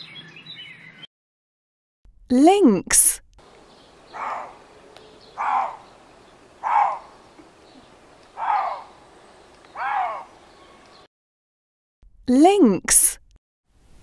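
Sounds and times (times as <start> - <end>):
lynx calling: 3.4 - 11.0.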